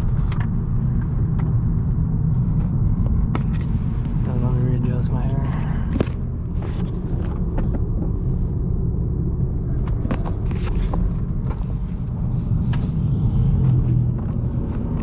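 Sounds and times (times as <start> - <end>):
road and tyre noise: 0.0 - 15.0.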